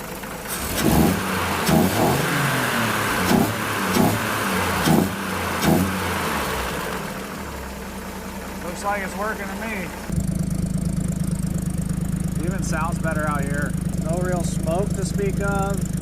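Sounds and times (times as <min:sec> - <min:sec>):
truck engine revving: 0:00.0 - 0:07.6, 0:08.6 - 0:16.0.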